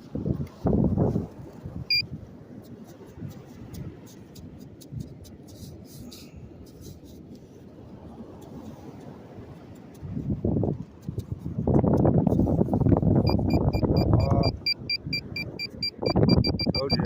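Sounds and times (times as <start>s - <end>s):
wind buffeting microphone: 0.0s - 4.1s, 7.9s - 17.0s
faint quick clicks and scratches: 2.6s - 13.0s
metal detector beep: 13.2s - 17.0s.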